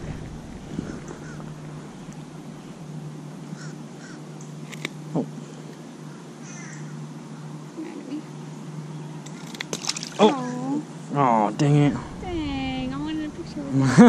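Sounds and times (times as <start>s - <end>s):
birds calling faintly: 0.0s - 13.7s
steady low hum: 0.0s - 14.0s.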